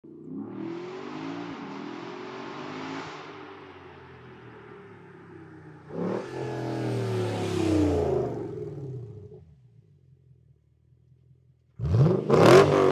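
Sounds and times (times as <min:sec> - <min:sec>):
car engine revving through exhaust: 0:11.8 - 0:12.9.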